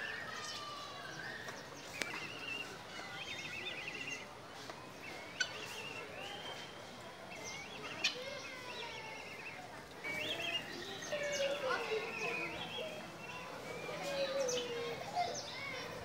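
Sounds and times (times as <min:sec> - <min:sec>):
birds chirping: 0:00.3 - 0:16.0.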